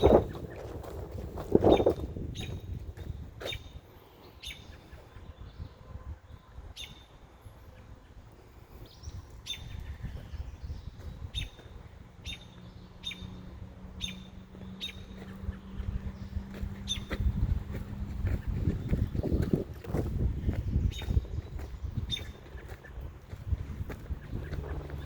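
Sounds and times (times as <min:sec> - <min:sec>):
bird chirping: 0:08.8 - 0:25.0.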